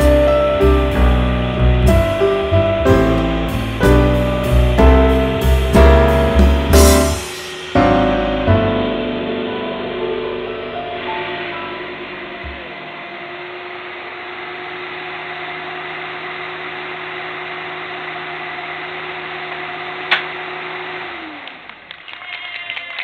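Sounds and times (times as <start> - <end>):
mechanical whirring hum: 7.7 - 22.0.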